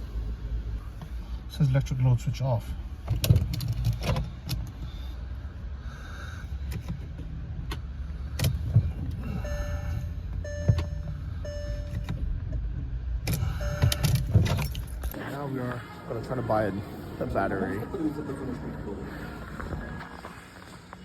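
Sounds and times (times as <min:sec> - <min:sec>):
car warning chime beeping: 0:09.2 - 0:12.3, 0:13.4 - 0:15.0
low rumble: 0:16.0 - 0:21.0.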